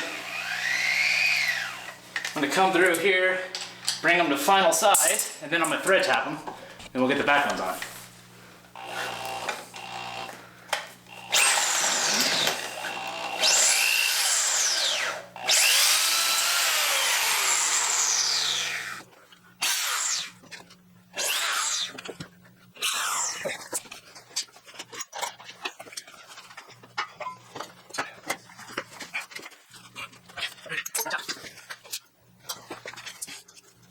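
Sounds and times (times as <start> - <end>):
power drill drilling steel: 0.0 - 2.0, 8.8 - 10.4, 11.1 - 19.0, 19.6 - 20.3, 21.2 - 22.0.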